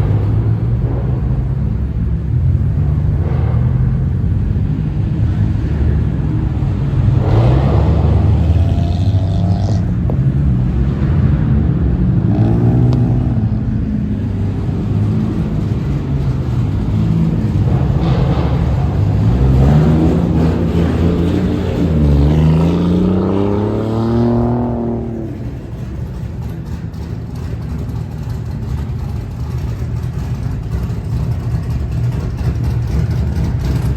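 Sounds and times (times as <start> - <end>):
car engines revving: 0.0 - 33.9.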